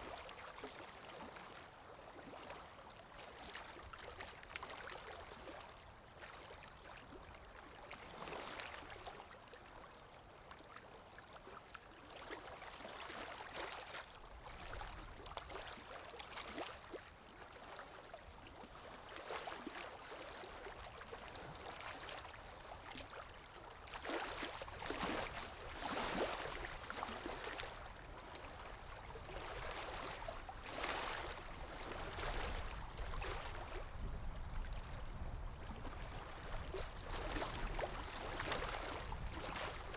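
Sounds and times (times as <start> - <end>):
water lapping and sloshing: 0.0 - 39.9.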